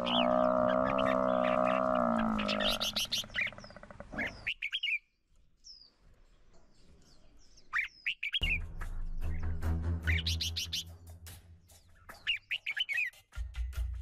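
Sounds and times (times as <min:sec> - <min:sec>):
long low animal call: 0:00.0 - 0:04.5
birds chirping: 0:00.0 - 0:13.4.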